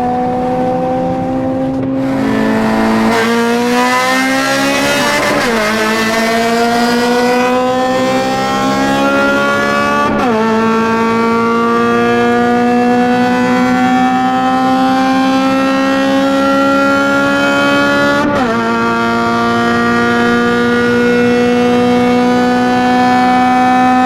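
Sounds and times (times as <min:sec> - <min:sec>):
car engine pulling under load: 0:01.9 - 0:09.5.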